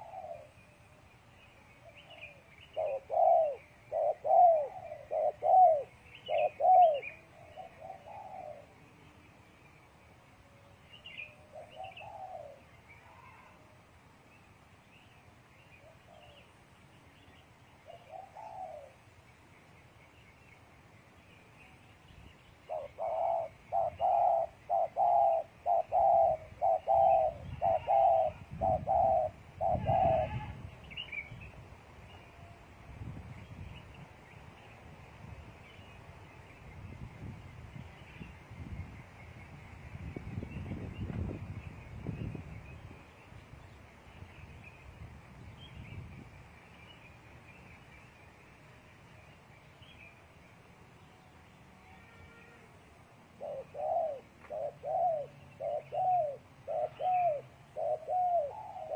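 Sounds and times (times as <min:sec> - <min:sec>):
dove cooing: 0:00.0 - 0:00.7, 0:01.8 - 0:08.8, 0:11.3 - 0:13.6, 0:17.9 - 0:19.0, 0:22.7 - 0:30.6, 0:53.4 - 0:58.9.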